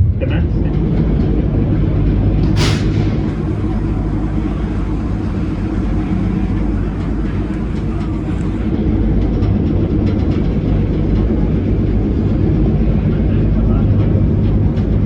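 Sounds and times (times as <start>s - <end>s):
train rumbling on track: 0.0s - 15.0s
faint track clicks: 6.5s - 10.5s.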